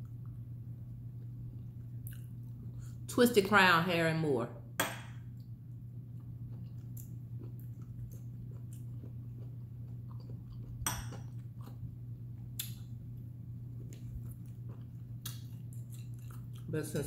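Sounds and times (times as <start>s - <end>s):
low hum: 0.0s - 17.0s
person chewing food: 1.0s - 2.9s, 5.2s - 17.0s.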